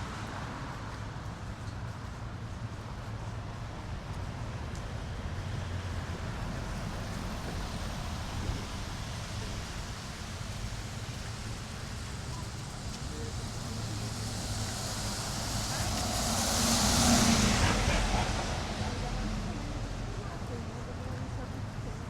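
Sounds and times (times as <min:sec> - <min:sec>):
low traffic rumble: 0:00.0 - 0:22.0
vehicle passing: 0:11.4 - 0:22.0.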